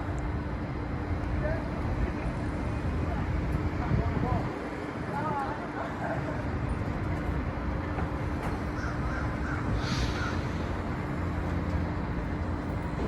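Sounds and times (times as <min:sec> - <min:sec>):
crow-like bird calls: 0:08.7 - 0:10.6.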